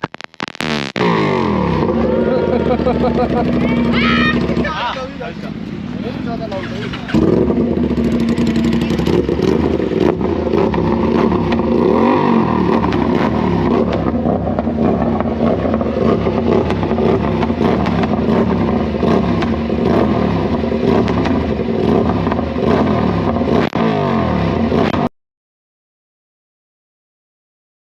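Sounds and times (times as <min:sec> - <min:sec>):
motorcycle engine revving: 0:00.0 - 0:25.1.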